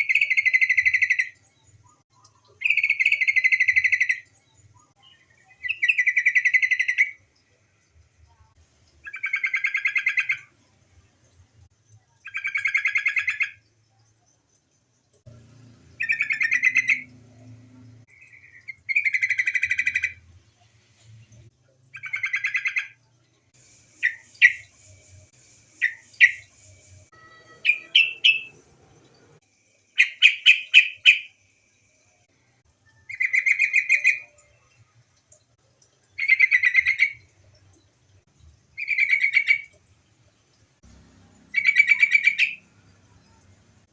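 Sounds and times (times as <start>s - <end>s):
bulbul chattering: 23.6s - 29.2s, 29.9s - 31.4s.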